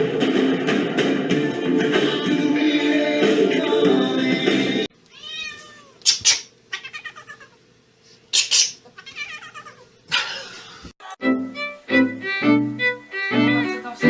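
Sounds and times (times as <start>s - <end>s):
cat meowing: 5.1s - 7.6s, 9.0s - 9.9s.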